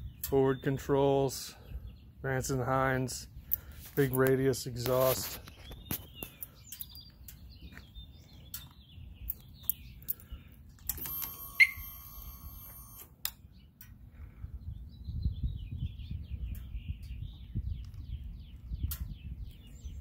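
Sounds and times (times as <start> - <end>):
birds chirping: 0.0 - 20.0
low rumble on microphone: 14.0 - 20.0.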